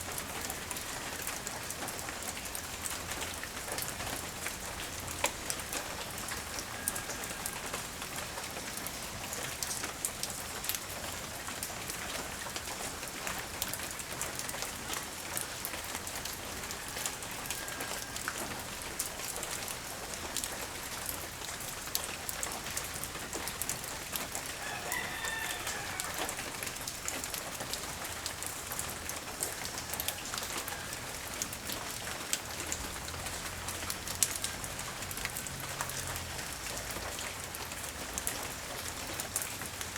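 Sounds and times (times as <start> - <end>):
light rain falling: 0.0 - 39.9
raindrops clicking on surface: 0.0 - 39.9
rooster crowing: 6.3 - 8.0, 16.5 - 18.8, 24.5 - 26.8, 29.6 - 31.4.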